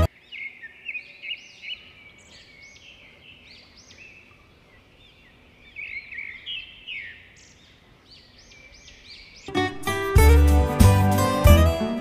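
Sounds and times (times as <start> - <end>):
small birds chirping: 0.0 - 9.6
faint outdoor background noise: 0.0 - 9.7.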